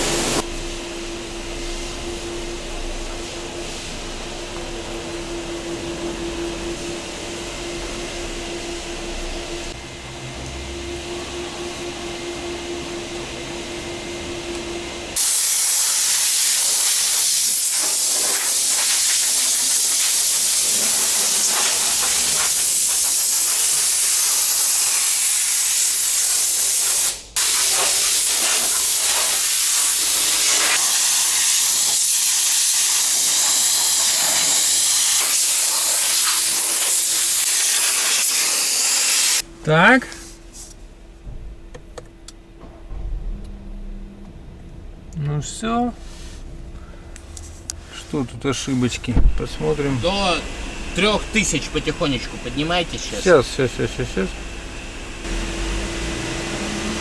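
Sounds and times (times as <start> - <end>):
pressure washer spraying water: 0.0 - 0.4, 15.2 - 39.4, 48.8 - 57.0
steady hum: 39.4 - 56.6.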